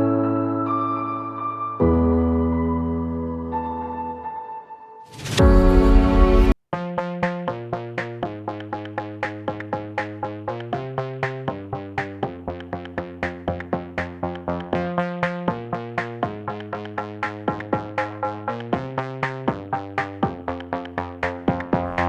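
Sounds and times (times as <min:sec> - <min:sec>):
electronic beat: 0:05.4 - 0:22.0
synthesizer chords: 0:05.4 - 0:22.0.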